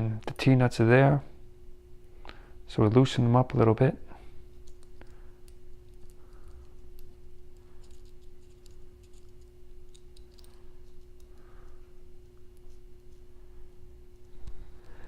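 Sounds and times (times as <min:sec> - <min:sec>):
faint steady hum: 0:00.0 - 0:15.0
small metal parts clicking: 0:04.6 - 0:11.5.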